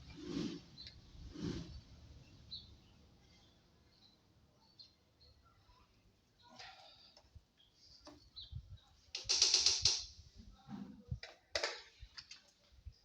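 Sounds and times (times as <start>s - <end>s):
tools clicking and knocking: 9.1s - 10.2s.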